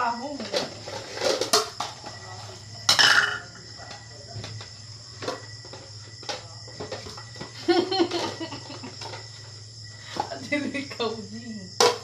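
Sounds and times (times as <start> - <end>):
crickets chirring: 0.0 - 12.0
dishes clinking: 2.8 - 3.6.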